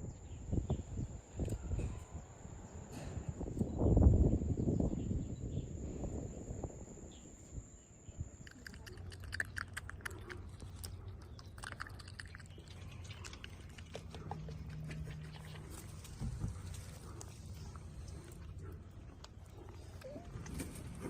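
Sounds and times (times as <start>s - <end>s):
low steady hum: 7.6s - 21.0s
animal chewing food: 8.4s - 21.0s.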